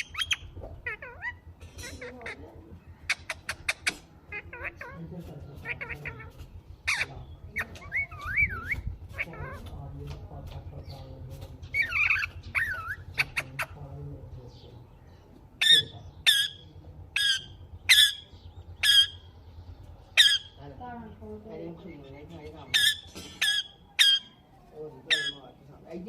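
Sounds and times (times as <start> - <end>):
parakeet whistling: 0.0 - 1.4, 6.9 - 8.9, 22.7 - 25.5
parakeet squawking: 0.0 - 9.8, 11.7 - 14.0, 15.6 - 25.9.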